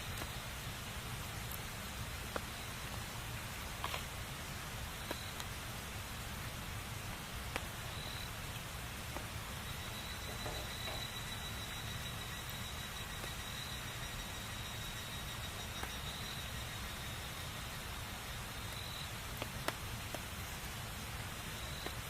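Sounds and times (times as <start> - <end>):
wood fire crackling: 0.0 - 22.0
faint high whistle: 7.9 - 8.3, 9.6 - 17.9.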